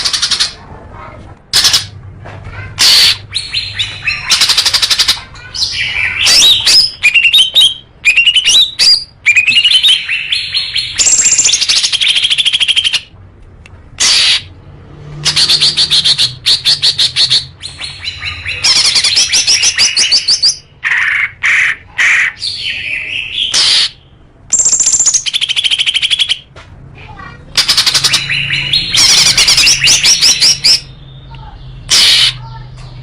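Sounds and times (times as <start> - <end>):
songbird trilling: 27.6 - 31.0.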